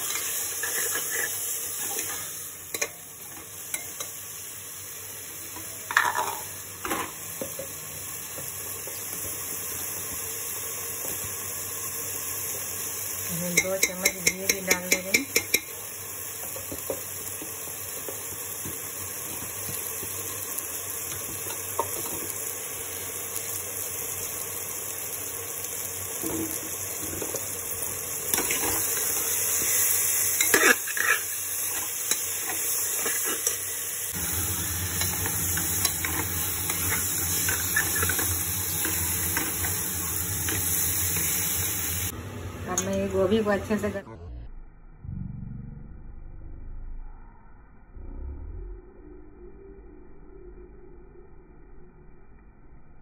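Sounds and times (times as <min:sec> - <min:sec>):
spoon scraping a metal pot: 0:00.0 - 0:02.2, 0:30.4 - 0:33.6, 0:35.0 - 0:39.8
food sizzling in a pot: 0:00.0 - 0:44.0
low hum: 0:34.1 - 0:53.0.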